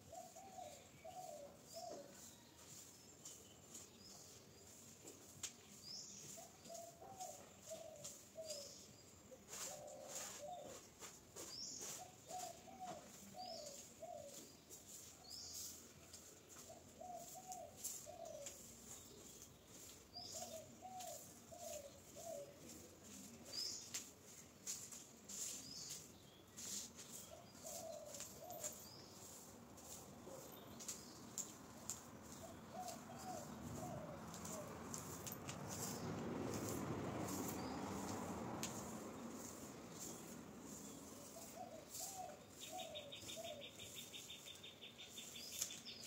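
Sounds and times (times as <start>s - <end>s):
low cooing bird call: 0.0s - 2.2s, 32.4s - 34.7s, 41.2s - 44.4s.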